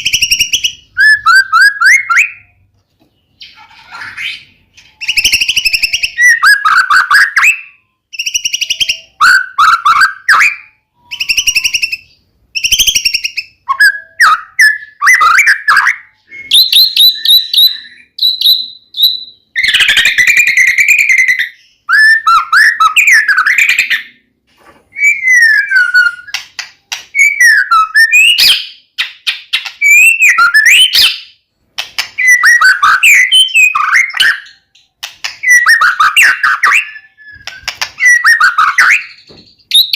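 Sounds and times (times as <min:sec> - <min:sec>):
songbird singing: 0:00.0 - 0:24.3.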